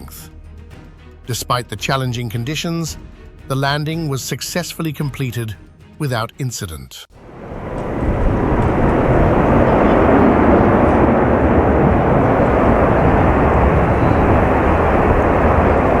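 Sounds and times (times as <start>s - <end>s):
jet engine roar: 7.1s - 16.0s.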